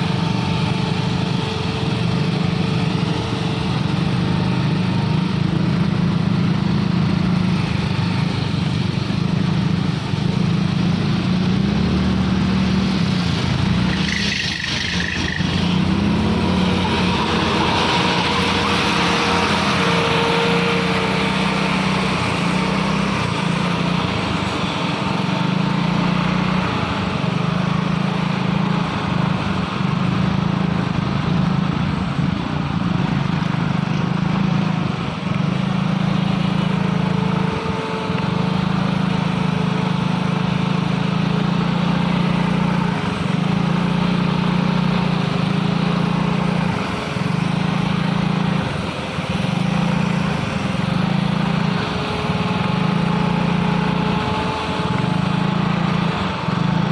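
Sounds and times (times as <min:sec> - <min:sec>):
diesel truck engine straining: 0:00.0 - 0:28.4.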